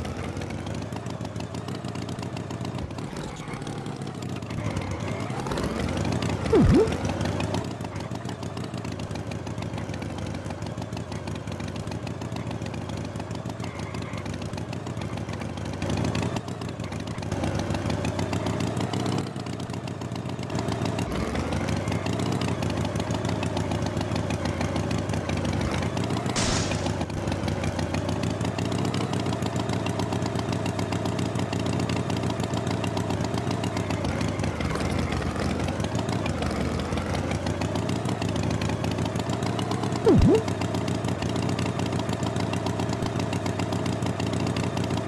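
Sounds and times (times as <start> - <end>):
tractor engine running: 26.3 - 27.7
short loud sound: 26.4 - 27.1, 40.1 - 40.5.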